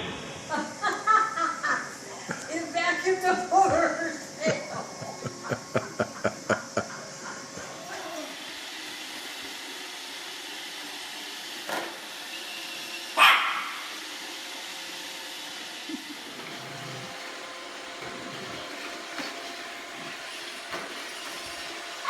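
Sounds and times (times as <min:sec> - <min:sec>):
robot vacuum cleaner whirring: 0:01.9 - 0:22.0
dog barking: 0:13.2 - 0:13.8.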